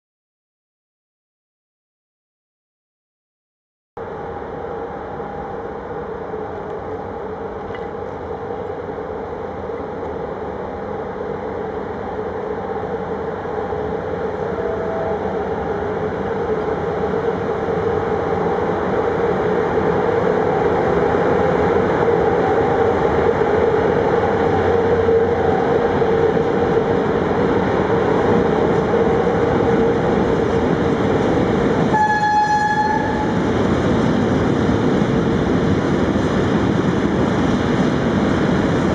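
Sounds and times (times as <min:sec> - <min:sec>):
freight train running with whine: 0:04.0 - 0:38.9
train horn blast: 0:14.5 - 0:15.3, 0:31.9 - 0:33.4.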